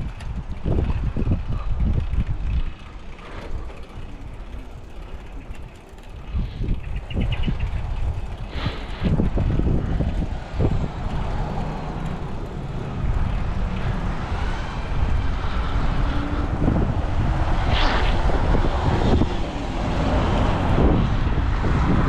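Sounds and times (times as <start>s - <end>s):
bicycle road rumble: 0.0s - 22.0s
wind buffeting microphone: 0.0s - 22.0s.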